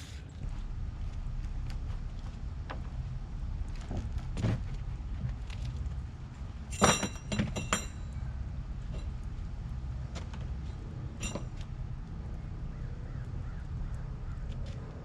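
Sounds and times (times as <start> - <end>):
steady low rumble: 0.0 - 15.0
metal clinking: 6.7 - 8.3, 11.2 - 11.7.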